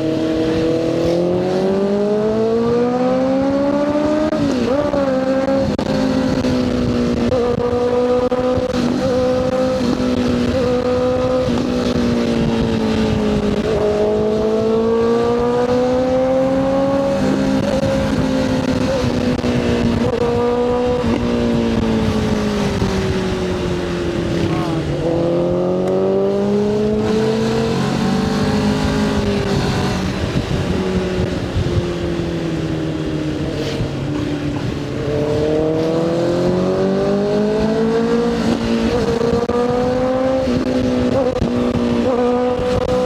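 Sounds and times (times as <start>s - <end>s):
motorcycle engine: 0.0s - 43.0s
wind rumble on microphone: 0.0s - 43.0s.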